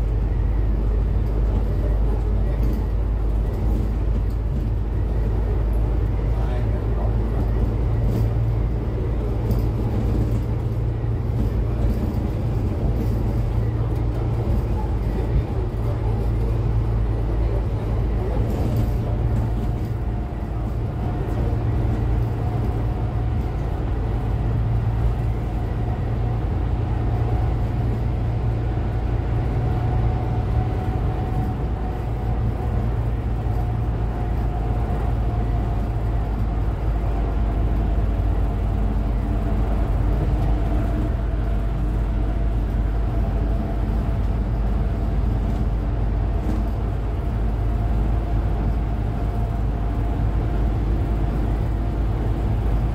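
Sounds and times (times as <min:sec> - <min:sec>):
diesel engine humming with whine: 0:00.0 - 0:52.9.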